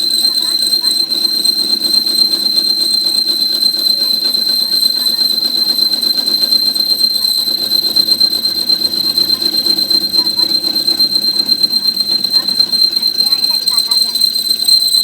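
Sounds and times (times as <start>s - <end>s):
high-pitched whine: 0.0s - 15.0s.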